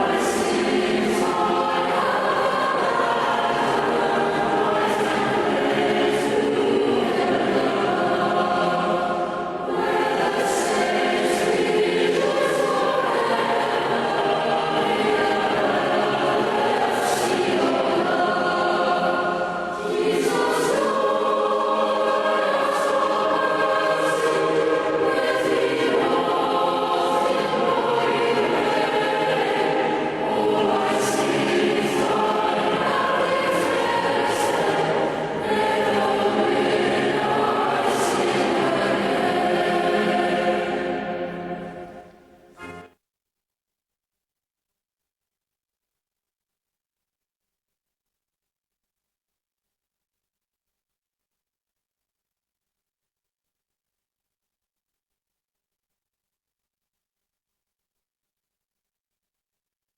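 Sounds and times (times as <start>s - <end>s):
choir singing a hymn: 0.0s - 42.9s.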